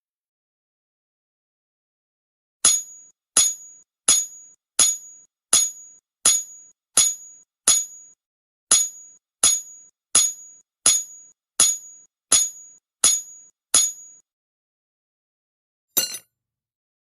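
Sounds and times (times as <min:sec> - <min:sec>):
hammer ringing on anvil: 0:16.0 - 0:16.2.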